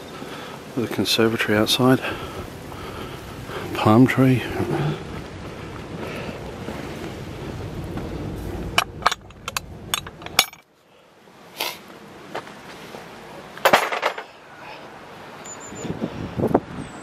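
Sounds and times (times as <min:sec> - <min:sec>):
wind buffeting microphone: 0:00.6 - 0:10.5, 0:15.7 - 0:17.0
sharp clicks and knocks: 0:07.9 - 0:10.7.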